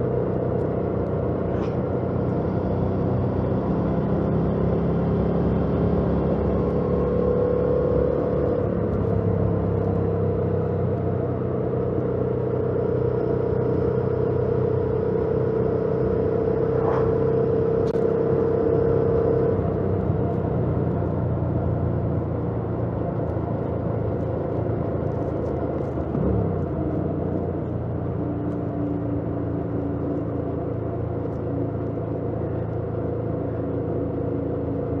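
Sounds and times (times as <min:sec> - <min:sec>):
wind and road noise: 0:00.0 - 0:35.0.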